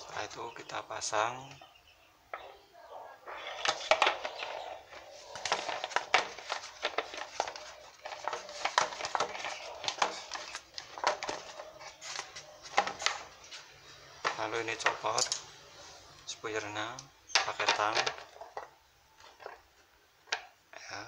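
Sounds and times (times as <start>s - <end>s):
plastic parts clicking and rubbing: 3.2s - 15.5s, 16.1s - 20.6s.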